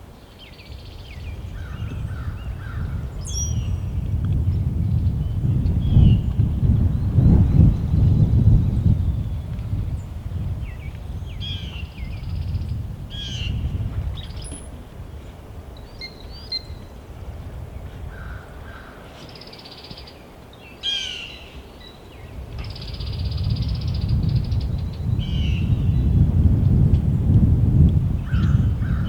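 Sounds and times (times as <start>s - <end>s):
wind rumble on microphone: 0.0s - 29.0s
bird calls: 15.8s - 16.9s, 18.1s - 23.2s.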